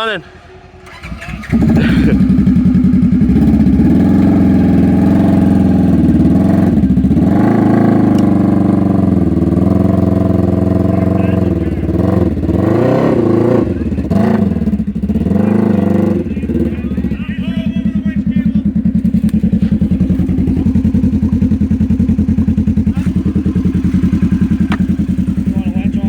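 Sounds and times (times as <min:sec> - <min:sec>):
engine at high revs under load: 0:00.8 - 0:17.6.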